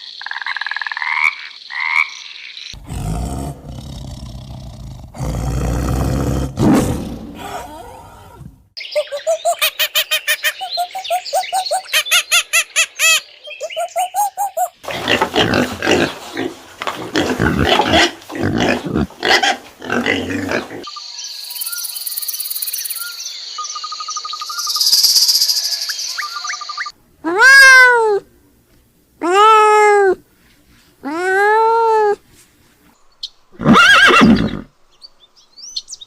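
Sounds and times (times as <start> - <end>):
insects buzzing and chirping: 0.0 - 3.1, 16.4 - 27.0
animal grunting: 2.8 - 8.7, 14.8 - 20.9.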